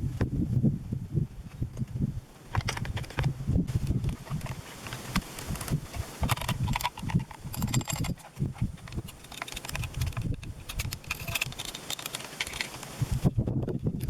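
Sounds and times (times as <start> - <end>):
tools and parts clicking and knocking: 2.5 - 3.3, 3.9 - 13.0.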